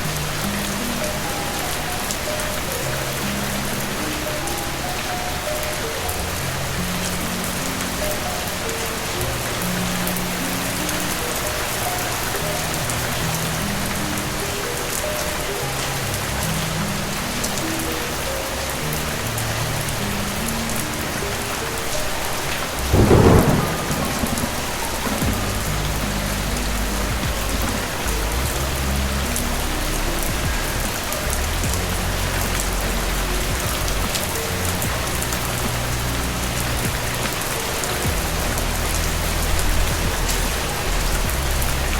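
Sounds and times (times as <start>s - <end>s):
soft slow melody of low notes: 0.0s - 41.9s
steady rain falling: 0.0s - 41.9s
thunder clap rumbling: 22.7s - 41.9s.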